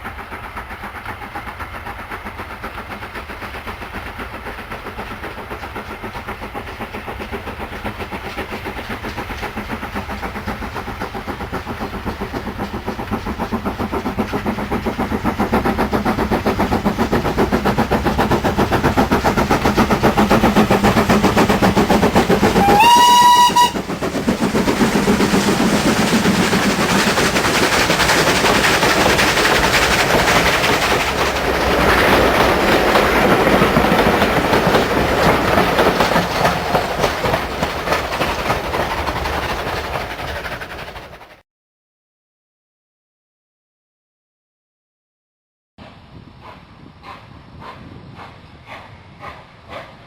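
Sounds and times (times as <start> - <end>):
train running with steady hum: 0.0 - 41.4, 45.8 - 50.0
wheels clattering on rails: 0.0 - 41.4
train whistle: 22.5 - 23.8.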